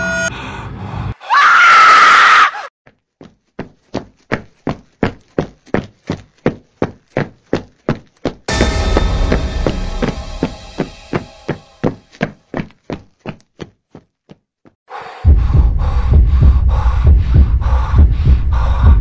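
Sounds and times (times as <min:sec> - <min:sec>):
woman screaming: 0:01.3 - 0:02.7
footsteps running on stairs: 0:03.2 - 0:08.5.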